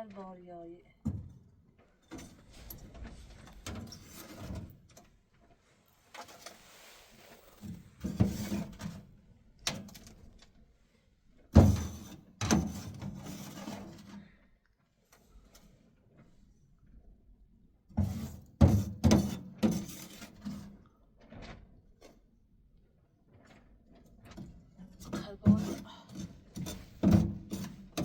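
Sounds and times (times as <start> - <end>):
objects knocking and scraping: 1.0 - 5.1, 6.2 - 9.1, 11.6 - 14.2, 18.0 - 22.2, 23.3 - 28.0.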